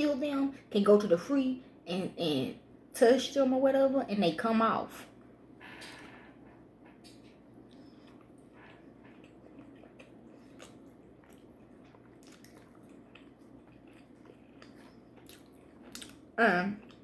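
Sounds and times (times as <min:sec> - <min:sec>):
chewing food: 0:06.9 - 0:17.0.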